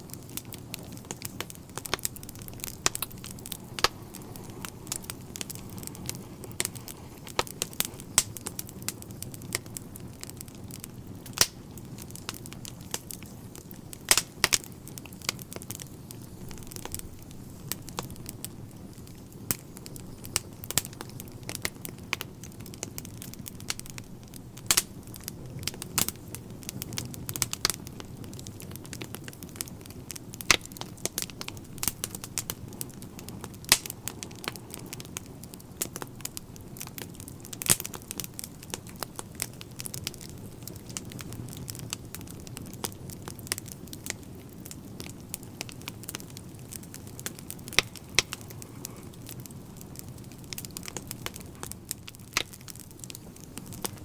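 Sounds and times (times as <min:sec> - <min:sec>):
low rumble of burning logs: 0:00.0 - 0:54.0
wood fire crackling: 0:00.0 - 0:54.0.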